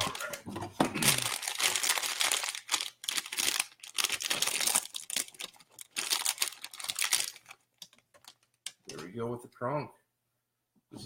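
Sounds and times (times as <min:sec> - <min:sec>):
packaging torn and crinkled: 0:01.0 - 0:08.9.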